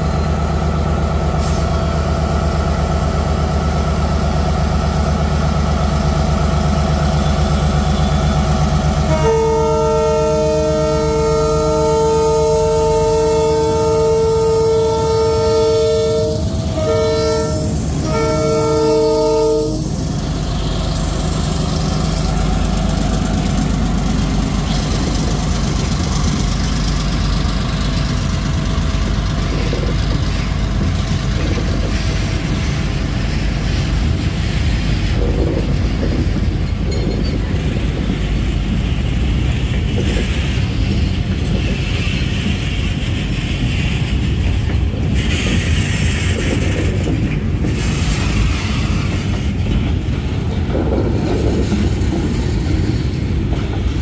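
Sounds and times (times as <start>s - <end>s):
freight train rumbling past: 0.0s - 54.0s
locomotive horn blast: 9.0s - 20.0s.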